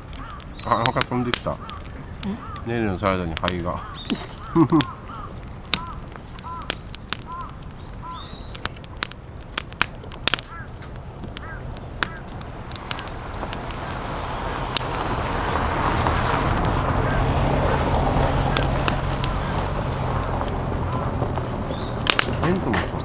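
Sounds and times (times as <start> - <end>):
bird chirping: 0.0 - 9.0, 10.5 - 23.0
campfire crackling and popping: 0.0 - 23.0
rushing hiss: 12.7 - 23.0.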